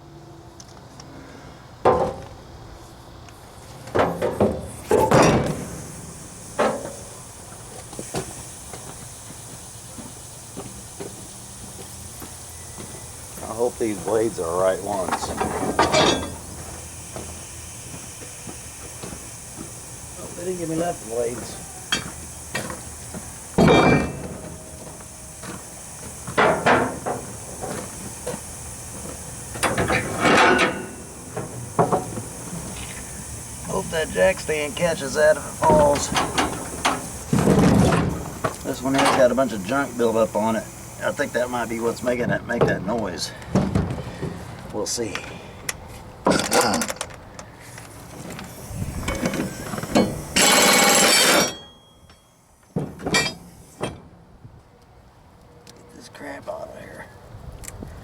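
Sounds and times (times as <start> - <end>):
tools and metal parts clattering: 15.0 - 16.5, 23.6 - 24.9, 29.6 - 32.1, 38.9 - 39.3, 46.3 - 47.2, 49.0 - 52.3, 53.0 - 54.0.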